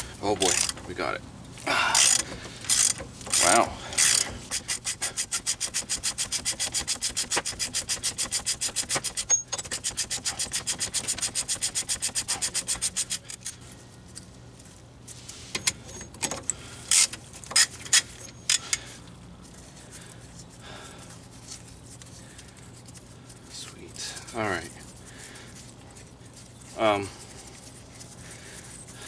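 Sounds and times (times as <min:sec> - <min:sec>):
socket ratchet clicking: 0:00.4 - 0:00.9, 0:02.0 - 0:13.6.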